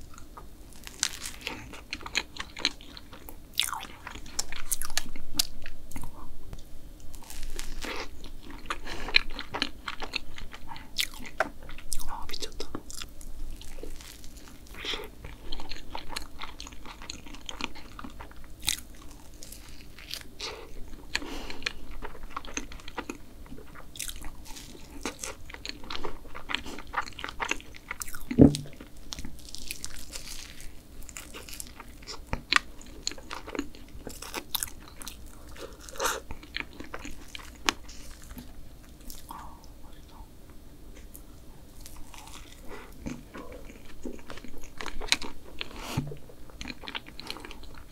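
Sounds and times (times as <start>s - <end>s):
crunchy biting and chewing: 0.1s - 6.1s, 7.1s - 39.5s, 41.7s - 47.9s
sharp thump: 28.4s - 28.7s.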